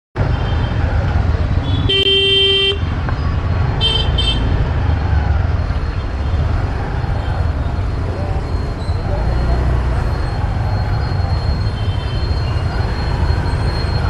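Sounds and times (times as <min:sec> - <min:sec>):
motorbike engine and road rumble: 0:00.2 - 0:14.0
vehicle horn: 0:01.7 - 0:02.8.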